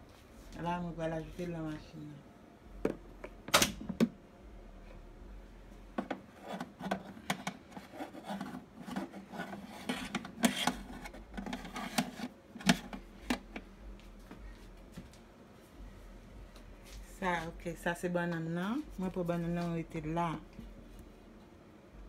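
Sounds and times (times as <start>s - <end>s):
rubbing and scraping: 6.3s - 13.0s.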